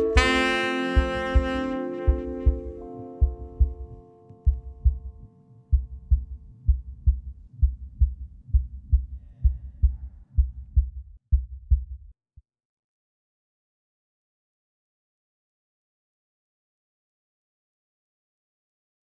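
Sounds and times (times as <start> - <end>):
held music notes: 0.0 - 6.0
muffled heartbeat-like thudding: 0.2 - 12.1.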